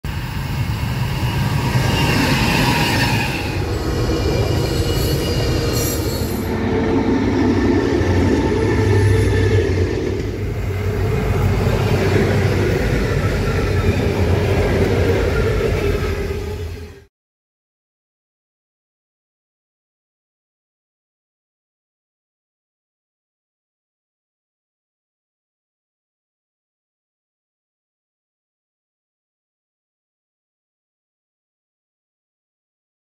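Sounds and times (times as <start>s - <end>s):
locomotive engines running: 0.1s - 17.0s.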